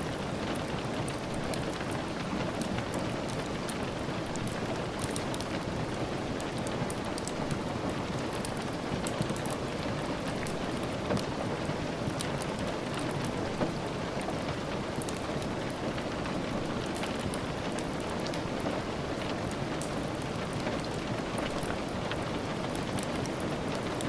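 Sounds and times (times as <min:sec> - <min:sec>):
rain tapping on windows: 0:00.0 - 0:24.0.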